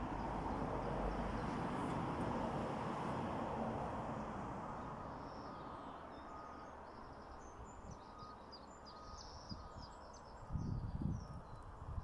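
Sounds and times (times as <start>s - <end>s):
songbirds chirping and trilling: 4.1s - 12.0s.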